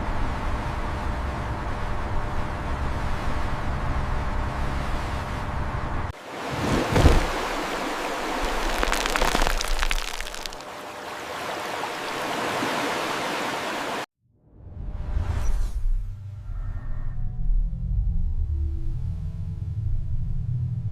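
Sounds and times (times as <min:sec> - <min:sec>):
rushing splashing water: 0:06.2 - 0:14.1.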